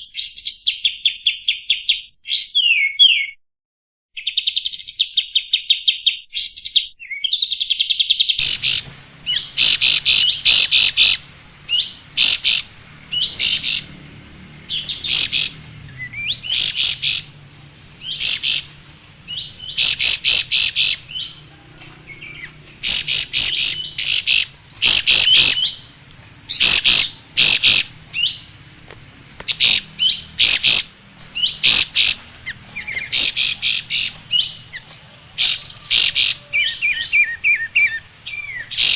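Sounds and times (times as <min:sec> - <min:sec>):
bird chattering trills: 0:07.9 - 0:38.9
faint low hum: 0:08.4 - 0:35.9.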